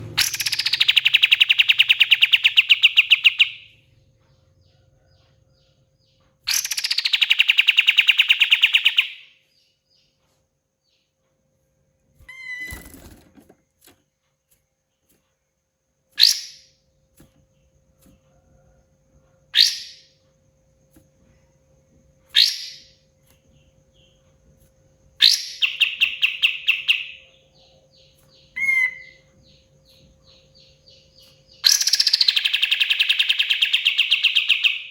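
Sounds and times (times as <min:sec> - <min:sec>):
bird singing fast trills: 0:00.0 - 0:10.1, 0:16.2 - 0:16.8, 0:19.5 - 0:20.2, 0:22.3 - 0:24.3, 0:25.1 - 0:34.9.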